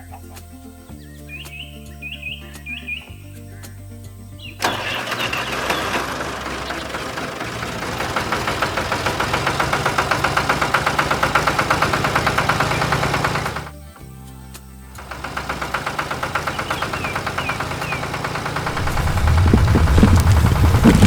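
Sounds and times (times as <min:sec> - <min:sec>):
engine starting and knocking: 0:04.6 - 0:13.7, 0:15.0 - 0:21.0.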